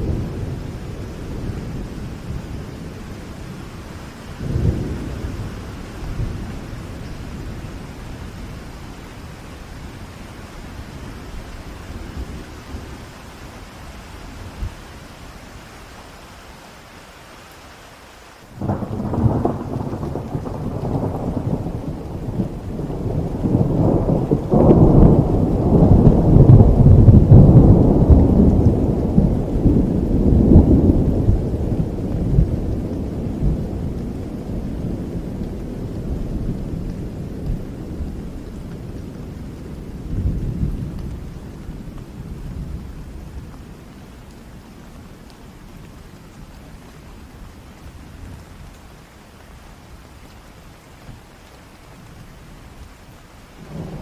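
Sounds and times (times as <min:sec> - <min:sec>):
thunder rumbling: 0:00.0 - 0:13.3, 0:18.5 - 0:46.6, 0:53.5 - 0:54.0
steady rain: 0:00.0 - 0:54.0
thunder crack: 0:18.6 - 0:32.6.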